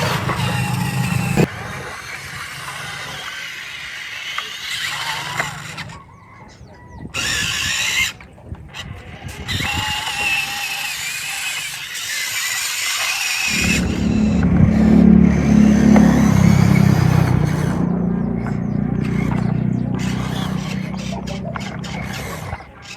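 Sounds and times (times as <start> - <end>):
low steady motor drone: 0.0 - 1.5, 13.5 - 22.9
small electric motors whining: 0.0 - 22.9.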